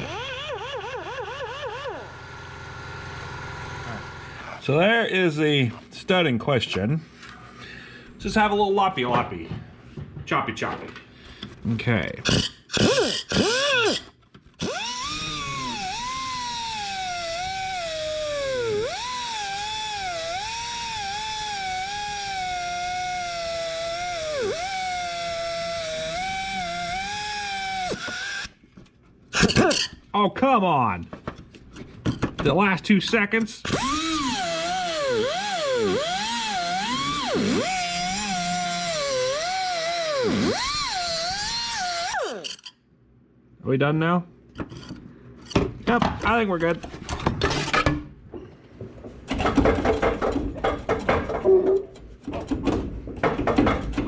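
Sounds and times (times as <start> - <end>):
power tool motor whining: 0.0 - 4.6, 12.3 - 28.6, 33.6 - 42.7.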